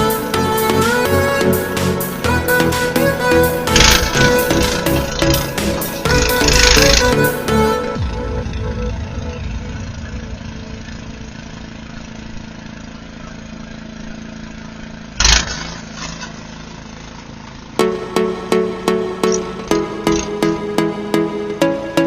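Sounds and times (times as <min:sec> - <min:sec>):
engine running: 0:00.0 - 0:22.0
loud thump: 0:07.9 - 0:12.6.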